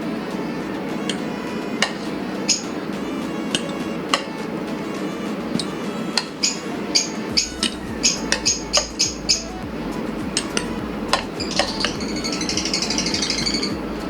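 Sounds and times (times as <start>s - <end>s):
spoon clinking against dishes: 3.5s - 4.5s.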